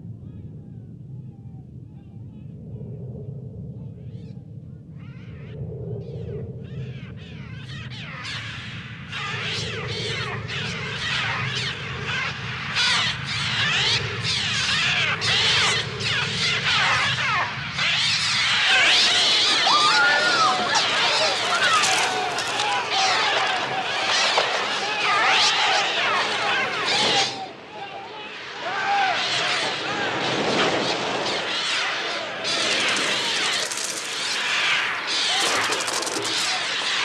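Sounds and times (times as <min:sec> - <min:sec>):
steady low rumble: 0:00.0 - 0:17.6
birds shrieking: 0:06.7 - 0:27.4.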